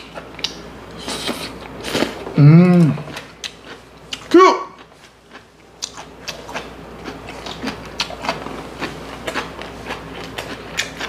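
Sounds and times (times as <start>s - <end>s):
wet chewing mouth smacks: 5.8s - 11.0s.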